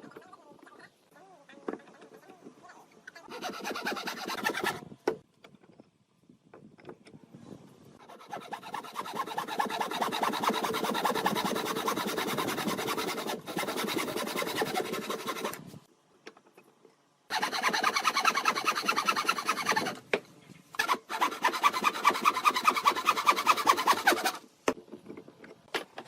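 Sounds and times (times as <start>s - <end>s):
tool rasping wood: 3.3s - 4.8s, 8.0s - 15.8s, 17.3s - 20.0s, 20.8s - 24.4s.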